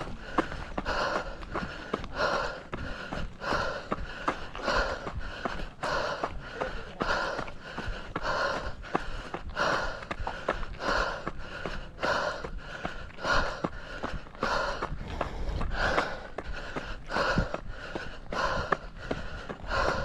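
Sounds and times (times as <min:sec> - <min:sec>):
footsteps crunching on dirt: 0:00.0 - 0:20.0
runner panting heavily: 0:00.0 - 0:20.0.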